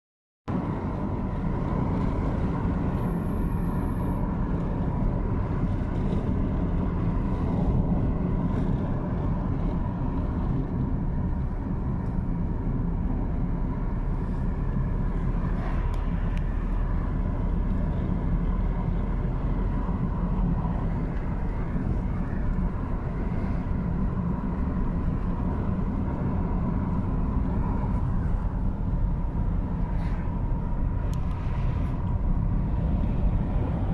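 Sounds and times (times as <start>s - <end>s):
car road and engine noise: 0.5s - 33.9s
faint steady whine: 0.5s - 33.9s.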